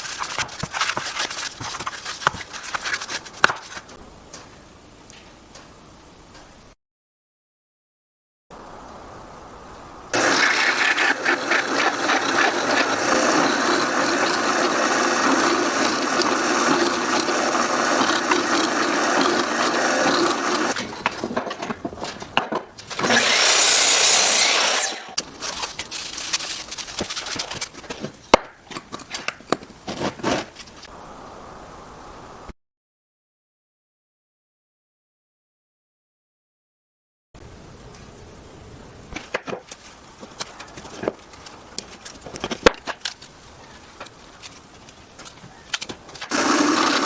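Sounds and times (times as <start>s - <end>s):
power tool cutting wood: 10.2s - 21.3s, 22.9s - 25.2s, 46.3s - 47.0s.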